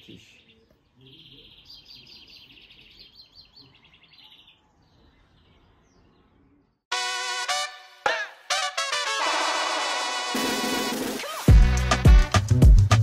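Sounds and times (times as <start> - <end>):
songbird singing: 0.0 - 6.8.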